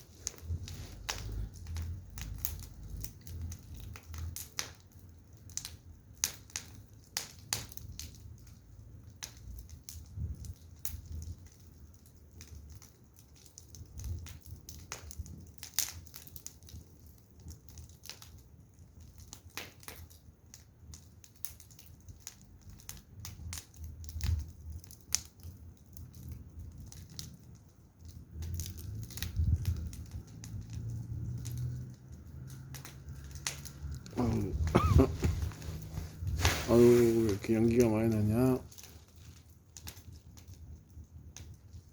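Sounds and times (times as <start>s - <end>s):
firewood crackling: 0.0s - 41.9s
low rumble: 33.7s - 37.5s.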